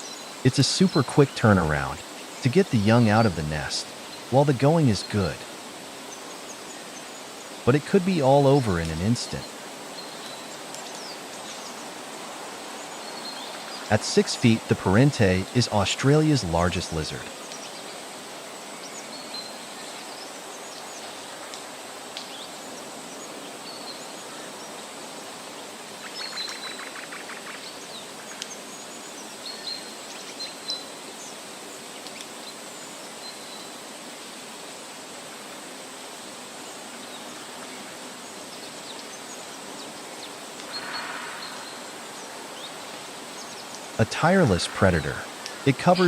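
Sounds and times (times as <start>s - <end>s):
background hiss: 0.0s - 46.0s
high bird chirps: 40.7s - 46.0s.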